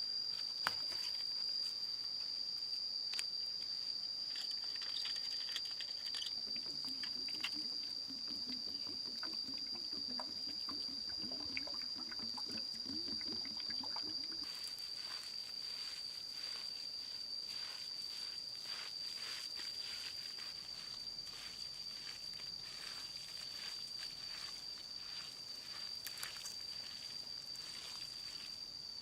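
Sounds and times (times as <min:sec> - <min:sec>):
insects droning: 0:00.0 - 0:29.0
low wavering warble: 0:06.4 - 0:14.5.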